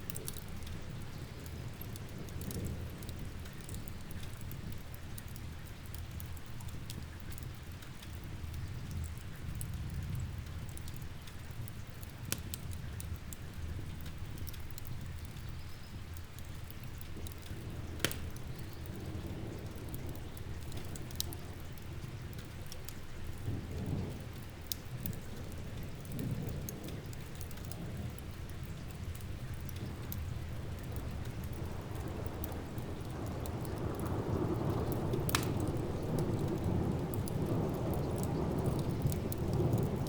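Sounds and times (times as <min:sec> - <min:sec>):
steady rain: 0:00.0 - 0:40.0
wood fire crackling: 0:00.0 - 0:40.0
rolling thunder: 0:30.5 - 0:40.0.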